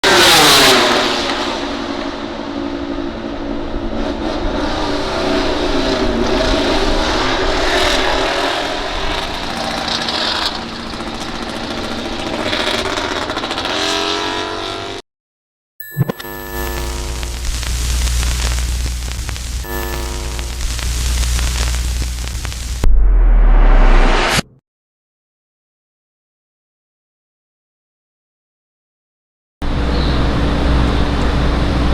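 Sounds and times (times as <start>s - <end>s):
racing motorcycles at high revs: 0.0s - 15.0s.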